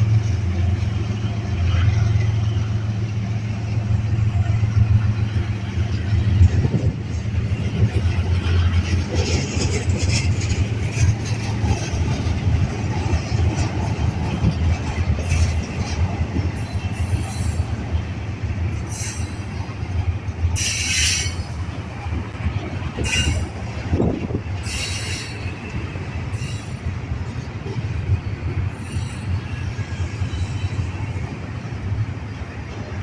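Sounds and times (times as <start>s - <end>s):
train rumbling past: 0.0s - 33.0s
high wheel squeals: 20.6s - 21.6s, 24.6s - 27.0s.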